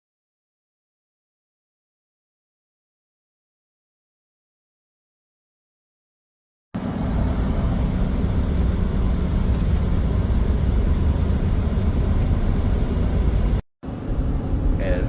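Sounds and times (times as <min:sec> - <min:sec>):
vehicle road and engine rumble: 0:06.8 - 0:15.0.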